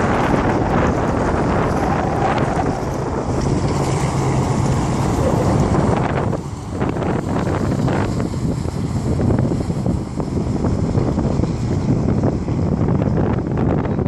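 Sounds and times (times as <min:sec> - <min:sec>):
jet ski engine: 0:00.0 - 0:14.0
water rushing: 0:00.0 - 0:14.0
wind buffeting microphone: 0:00.0 - 0:14.0.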